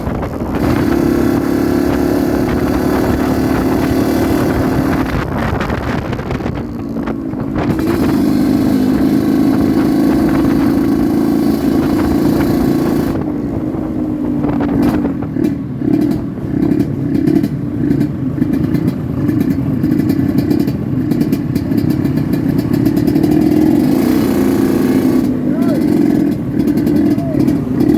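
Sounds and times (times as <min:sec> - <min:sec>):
motorcycle engine revving: 0:00.0 - 0:27.9.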